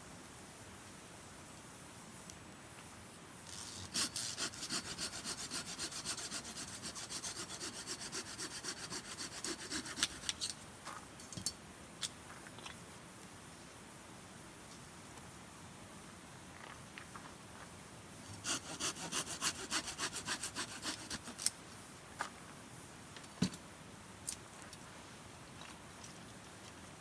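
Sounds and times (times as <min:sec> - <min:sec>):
hand saw cutting firewood: 0:03.7 - 0:10.4, 0:18.3 - 0:21.5.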